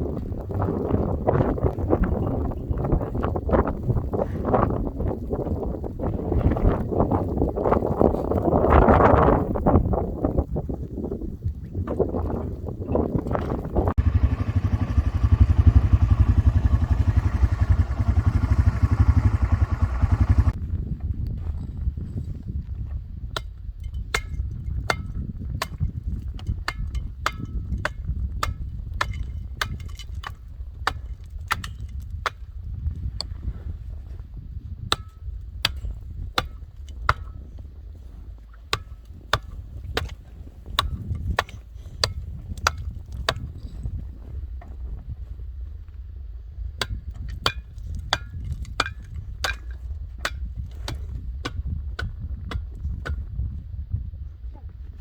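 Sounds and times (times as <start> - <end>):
steady low rumble: 13.8 - 20.7.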